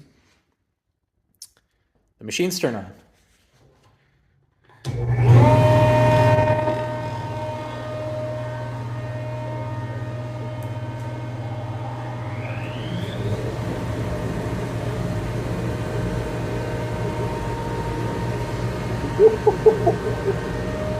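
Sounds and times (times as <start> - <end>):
woodworking machine humming: 4.8 - 20.9
dust collector whine and air rush: 4.9 - 20.9.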